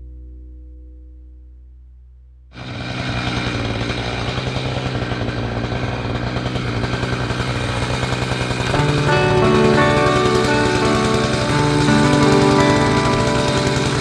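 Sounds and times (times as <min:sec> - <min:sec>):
music: 0:00.0 - 0:02.6, 0:08.7 - 0:14.0
chainsaw engine running: 0:02.6 - 0:14.0.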